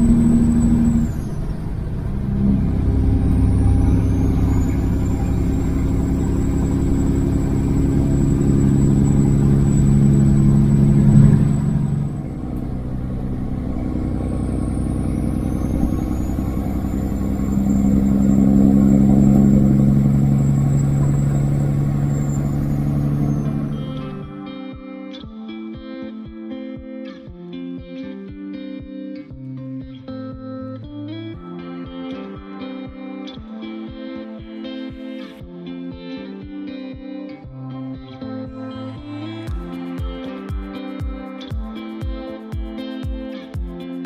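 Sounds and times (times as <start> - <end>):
truck diesel engine pulling: 0.0 - 24.3
thin high whistle: 2.4 - 12.3, 14.7 - 24.3.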